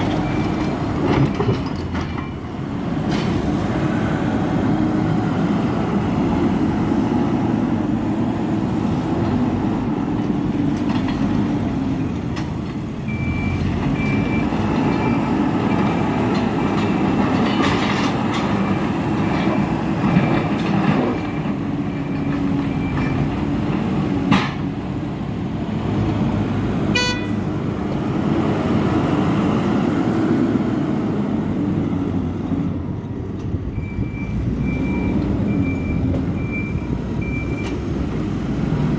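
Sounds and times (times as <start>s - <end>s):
reversing alarm beeping: 13.1s - 15.5s, 33.7s - 37.8s.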